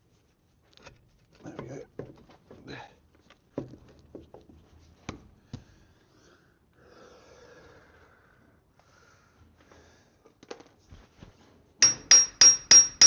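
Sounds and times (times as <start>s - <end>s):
soft steady noise: 0.0s - 13.0s
hand tools knocking on metal: 11.8s - 13.0s.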